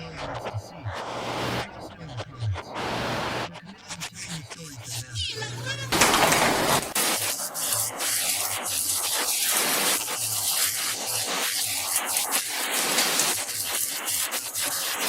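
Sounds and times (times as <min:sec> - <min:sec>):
heavy rain falling: 0:05.9 - 0:07.7.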